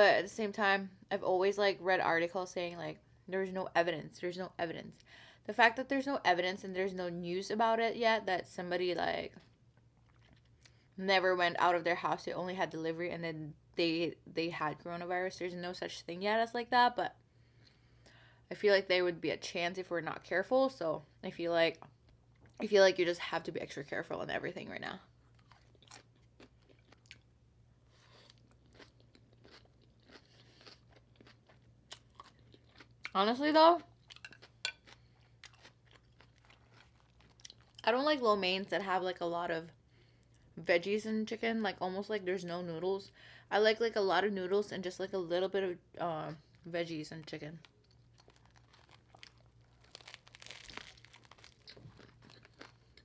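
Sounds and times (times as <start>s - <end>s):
low steady hum: 0.0s - 53.0s
person chewing: 10.0s - 10.8s, 25.3s - 27.3s, 27.9s - 33.2s, 33.9s - 37.8s, 47.6s - 53.0s
wrapper crinkling: 36.1s - 37.8s, 47.2s - 53.0s.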